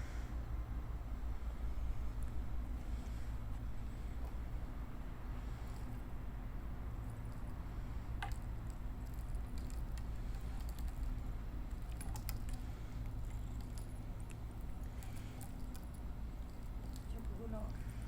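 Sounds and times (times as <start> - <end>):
cat crunching dry food: 8.2 - 18.0.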